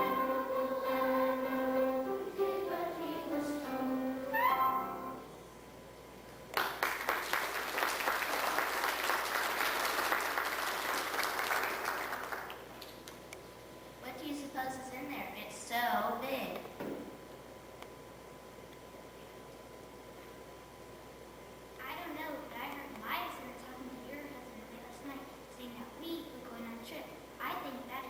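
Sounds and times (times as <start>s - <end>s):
song with instrumental accompaniment: 0.0s - 5.2s
audience applauding: 6.6s - 12.7s.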